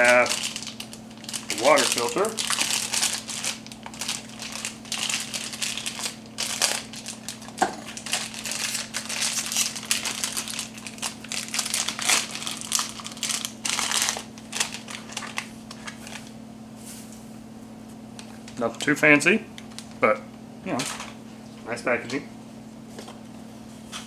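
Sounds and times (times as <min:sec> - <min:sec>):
packaging crinkling and rustling: 0:00.0 - 0:16.4, 0:18.2 - 0:19.0, 0:19.6 - 0:20.0, 0:20.7 - 0:21.2.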